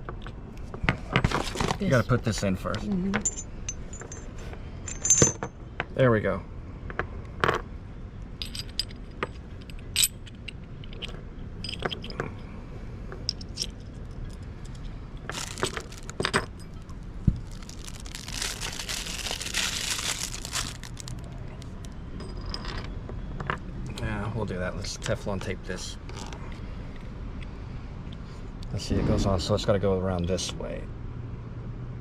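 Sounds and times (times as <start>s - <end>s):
small metal fittings clinking: 3.1s - 5.6s, 8.4s - 12.3s, 13.2s - 23.6s.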